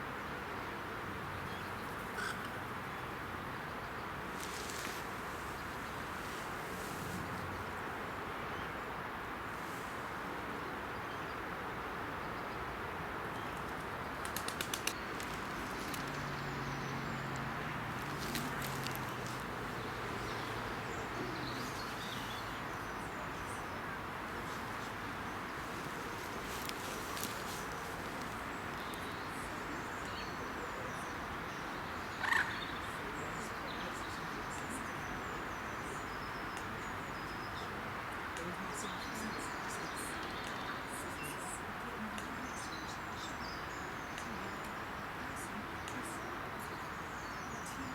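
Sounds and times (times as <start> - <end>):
outdoor background hiss: 0.0 - 47.9
small birds calling and singing: 13.4 - 47.9
bird wings flapping: 14.2 - 16.2.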